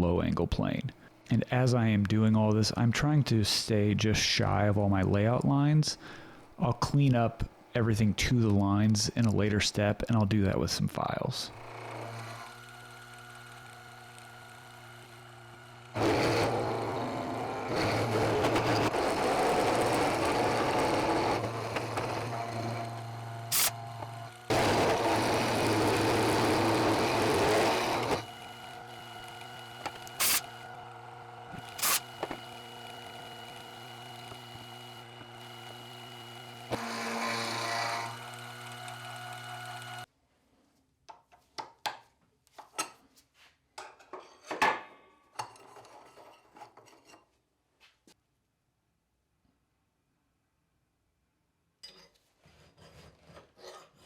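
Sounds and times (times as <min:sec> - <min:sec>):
milling machine humming: 0:11.5 - 0:40.1
cutter cutting steel: 0:11.6 - 0:40.1.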